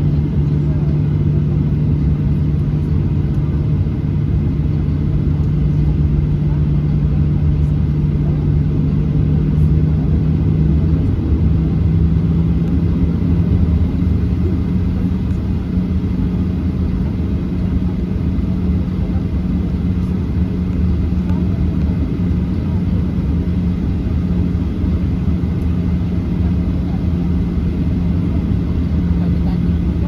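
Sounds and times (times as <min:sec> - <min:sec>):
jet engine drone in cabin: 0:00.0 - 0:30.0.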